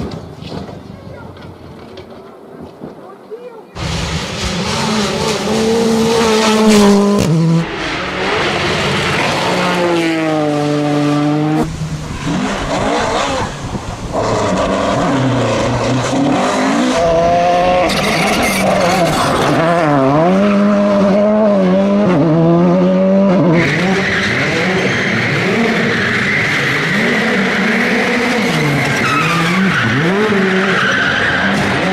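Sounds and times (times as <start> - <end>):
tyres skidding: 3.7 - 31.9
rally car engines revving: 3.8 - 31.9.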